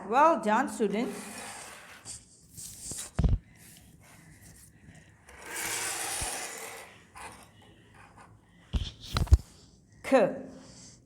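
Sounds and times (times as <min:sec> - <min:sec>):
object scraping across surface: 0:00.9 - 0:02.2, 0:05.3 - 0:07.5.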